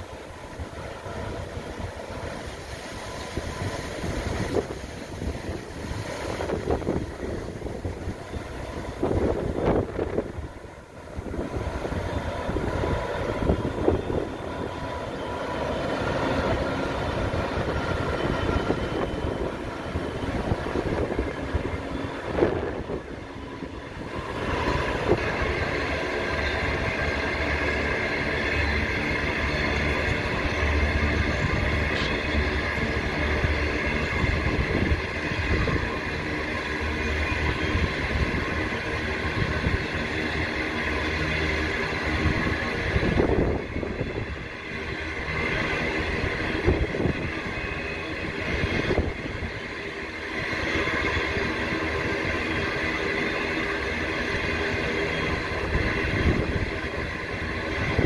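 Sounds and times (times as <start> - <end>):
diesel engine drone: 0.0 - 58.0
train wagons rumbling over rails: 0.0 - 58.0.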